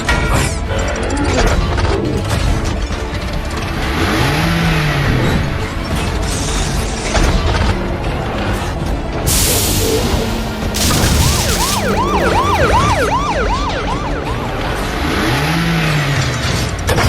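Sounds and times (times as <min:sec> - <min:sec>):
police siren fast yelp: 0:10.8 - 0:14.8.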